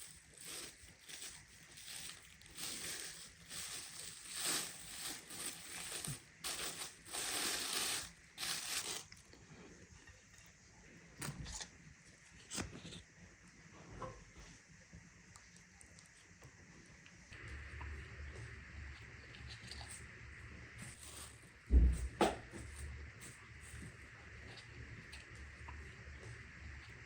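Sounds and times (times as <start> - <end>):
dry crinkling and crushing: 0.0 - 9.2.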